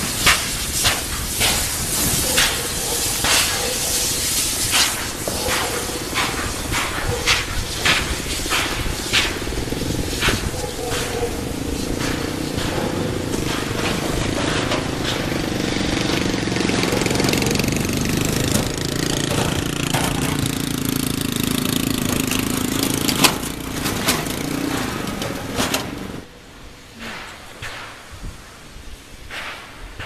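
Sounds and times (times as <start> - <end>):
steam train rumbling: 0.0 - 30.0
sharp metallic knocks: 4.8 - 26.2.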